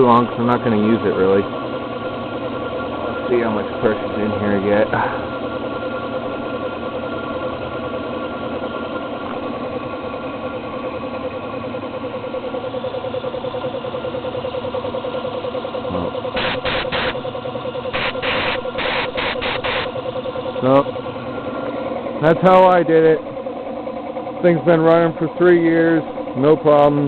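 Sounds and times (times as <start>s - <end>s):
air compressor running: 0.0s - 27.0s
short sharp bursts: 16.4s - 17.2s, 17.9s - 19.9s.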